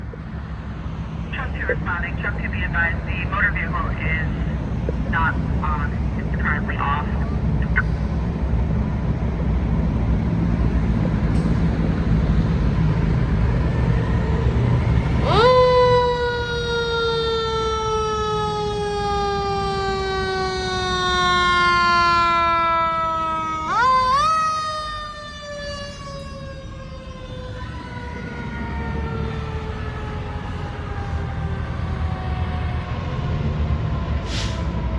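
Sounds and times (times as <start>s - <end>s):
low engine noise: 0.0s - 34.9s
fire truck siren winding: 15.2s - 31.4s.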